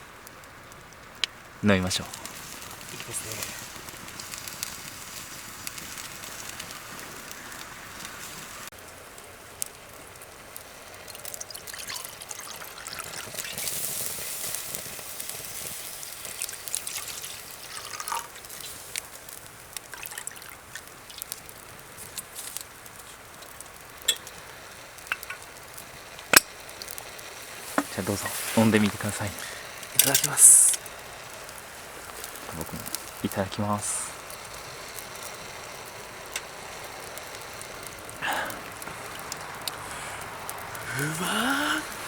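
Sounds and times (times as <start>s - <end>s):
campfire crackling: 0.0s - 42.0s
drink being poured: 10.9s - 14.4s, 16.2s - 18.8s, 19.8s - 21.5s.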